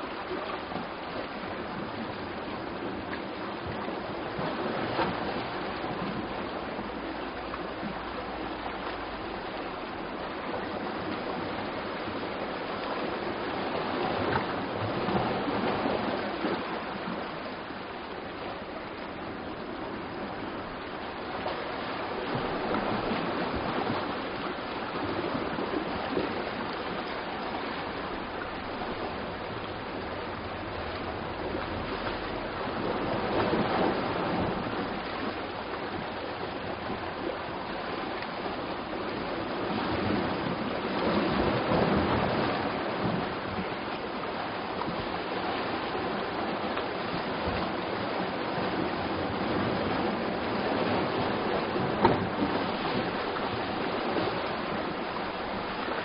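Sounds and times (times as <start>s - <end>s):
waves washing against rocky shore: 18.4s - 56.0s.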